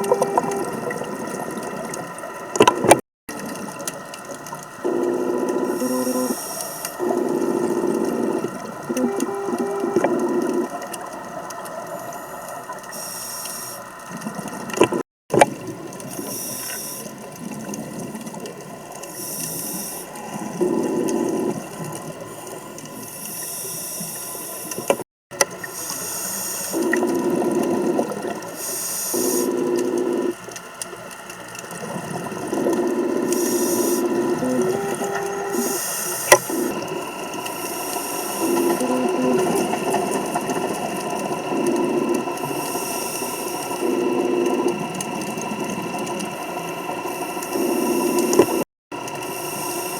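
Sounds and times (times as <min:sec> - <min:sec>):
regulator breathing rasp: 0:00.0 - 0:00.9, 0:04.8 - 0:10.8, 0:25.7 - 0:30.4, 0:32.5 - 0:40.8, 0:47.0 - 0:49.9
exhaled bubbles hissing: 0:00.0 - 0:49.9.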